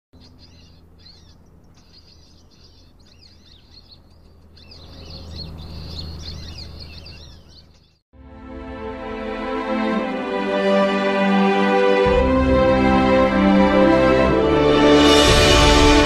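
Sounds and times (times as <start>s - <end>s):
small birds chirping: 0.1s - 8.0s.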